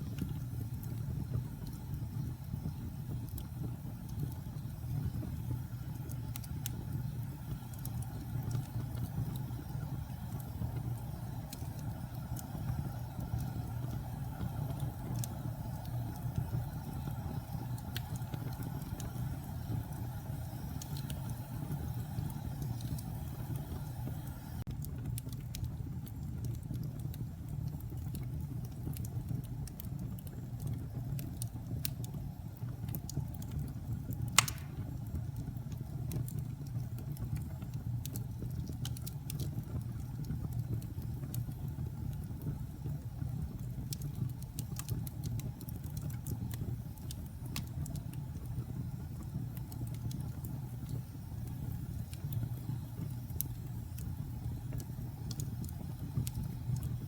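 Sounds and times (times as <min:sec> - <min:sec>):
fire crackling: 0:00.0 - 0:57.0
low rumble of flames: 0:00.0 - 0:57.0
sharp loud pop: 0:34.4 - 0:34.8.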